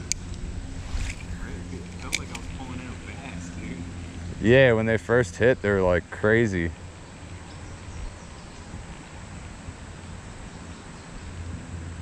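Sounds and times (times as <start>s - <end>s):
low rumble: 0.0s - 4.8s
even hiss: 0.0s - 8.8s.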